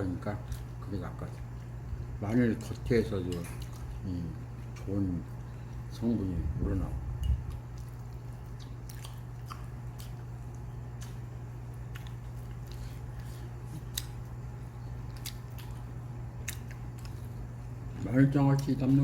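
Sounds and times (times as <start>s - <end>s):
steady low hum: 0.0s - 19.0s
chewing and biting: 7.4s - 18.0s.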